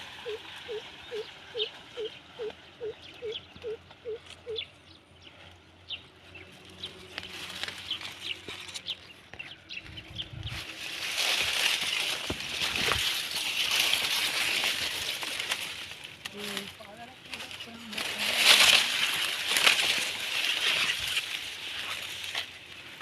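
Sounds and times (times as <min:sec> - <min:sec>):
bird low dipping call: 0:00.0 - 0:04.7.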